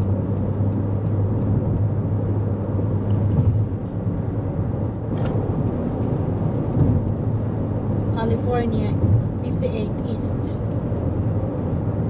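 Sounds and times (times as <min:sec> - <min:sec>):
car road noise drone: 0:00.0 - 0:12.0
sharp tick: 0:05.2 - 0:07.2.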